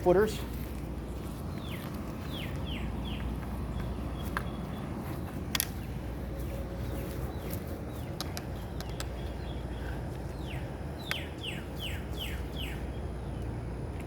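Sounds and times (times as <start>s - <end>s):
low outdoor rumble: 0.0s - 14.0s
songbird whistled calls: 9.2s - 12.9s.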